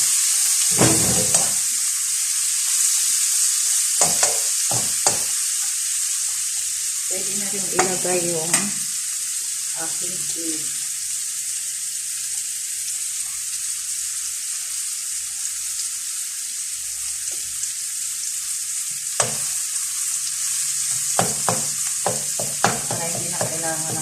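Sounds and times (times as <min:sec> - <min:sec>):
food sizzling in a frying pan: 0:00.0 - 0:24.0
spoon knocking against a pan: 0:00.8 - 0:01.6, 0:04.0 - 0:05.4, 0:19.2 - 0:19.5, 0:20.9 - 0:24.0.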